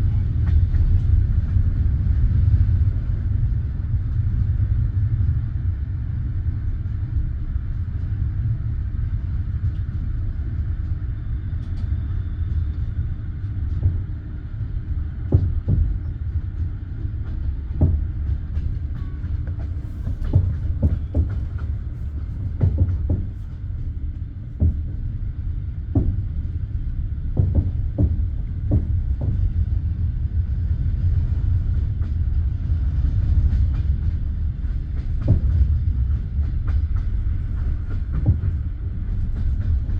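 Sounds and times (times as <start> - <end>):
train wheels rumbling on rails: 0.0 - 39.9
clacks over rail joints: 12.7 - 25.2, 25.9 - 26.5, 27.2 - 29.6, 33.1 - 39.9.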